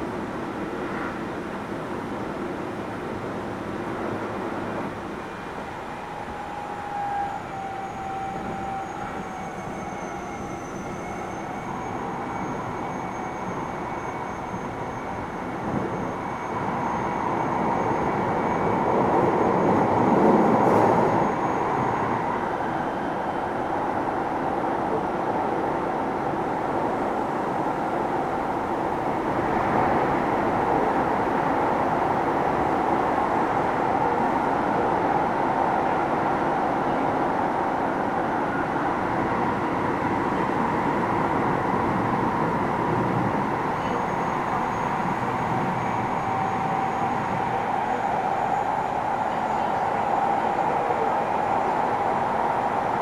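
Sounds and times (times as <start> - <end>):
train wheels rumbling on rail: 0.0 - 53.0
faint whining tones: 5.6 - 18.3, 26.5 - 34.5, 40.0 - 52.1.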